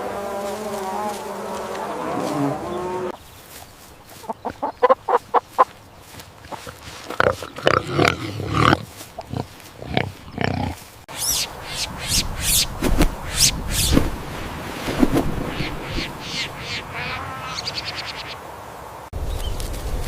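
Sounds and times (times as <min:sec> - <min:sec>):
pigs grunting: 0:06.4 - 0:10.8.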